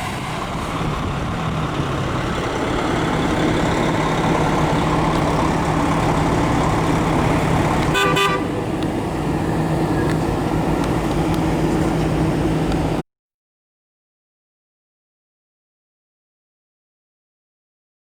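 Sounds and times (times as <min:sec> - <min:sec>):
car engine running: 0:00.0 - 0:13.0
car horn toot: 0:07.9 - 0:08.6.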